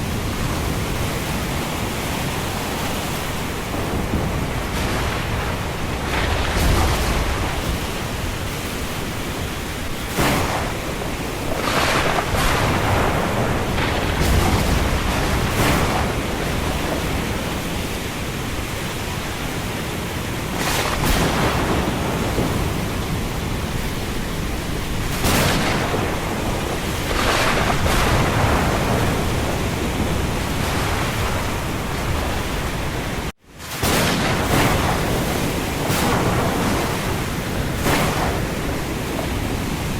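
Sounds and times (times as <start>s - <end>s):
rain: 0.0s - 39.9s
wind: 0.0s - 39.9s.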